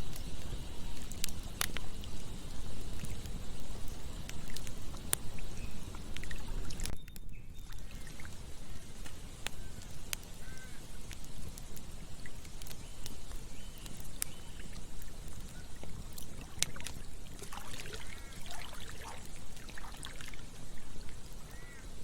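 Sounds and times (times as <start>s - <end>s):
flowing water: 0.0s - 7.0s, 7.7s - 10.3s, 11.2s - 22.0s
campfire crackling and popping: 0.0s - 22.0s.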